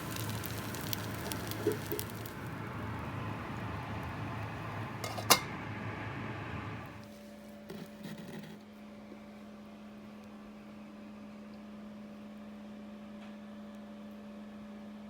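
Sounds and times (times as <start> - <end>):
steady hiss: 0.0 - 5.0
microwave oven humming: 0.0 - 15.0.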